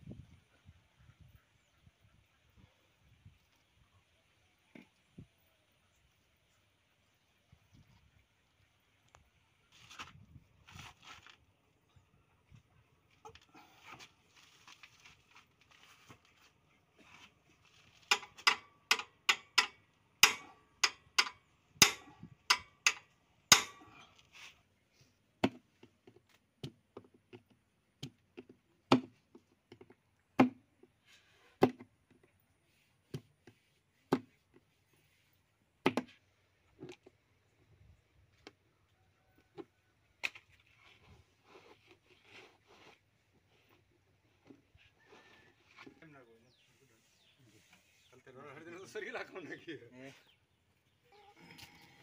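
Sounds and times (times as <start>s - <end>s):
hand tools knocking on metal: 18.1s - 23.8s.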